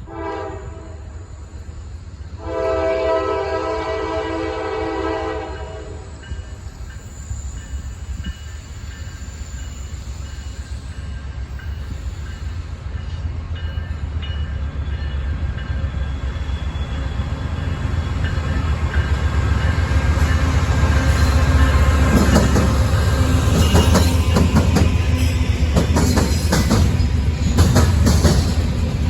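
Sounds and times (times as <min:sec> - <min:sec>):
diesel locomotive rumble: 0:11.0 - 0:29.0.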